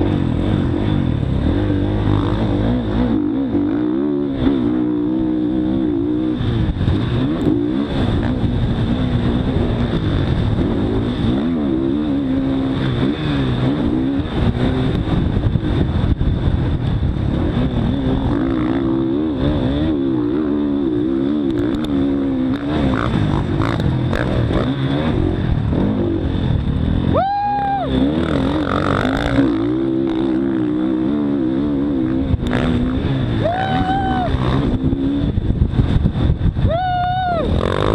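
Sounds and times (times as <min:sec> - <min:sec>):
dirt bike engine revving: 0:00.0 - 0:36.5, 0:37.4 - 0:37.9.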